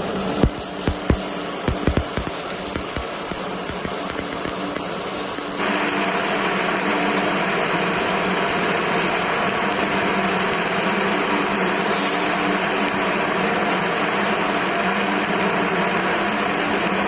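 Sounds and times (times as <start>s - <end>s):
welding arc crackling and hissing: 0.0s - 17.0s.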